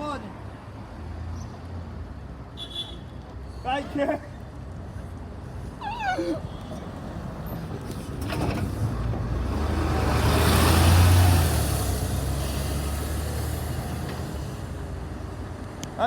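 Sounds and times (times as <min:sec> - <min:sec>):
diesel engine hum: 0:04.8 - 0:16.0.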